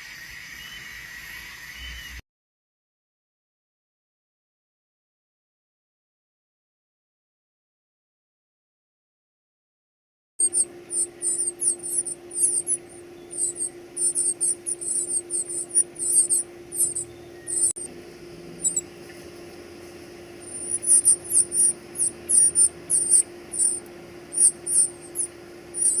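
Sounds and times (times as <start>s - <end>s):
high-pitched squeaky chirps: 10.4s - 17.9s, 18.6s - 18.8s, 20.4s - 26.0s
steady low hum: 10.4s - 26.0s.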